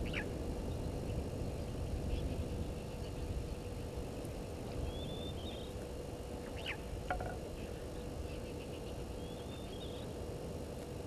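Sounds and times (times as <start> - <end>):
faint steady hum: 0.0 - 11.0
low outdoor rumble: 0.0 - 11.0
bird chirps: 2.1 - 5.8, 6.4 - 10.2.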